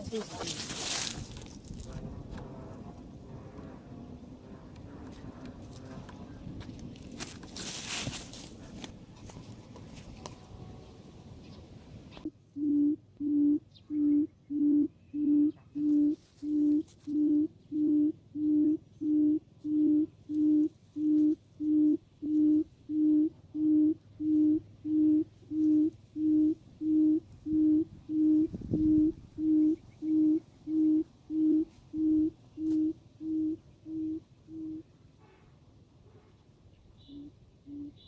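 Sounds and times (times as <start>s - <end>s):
quail hooting: 10.4s - 34.9s, 37.0s - 38.0s.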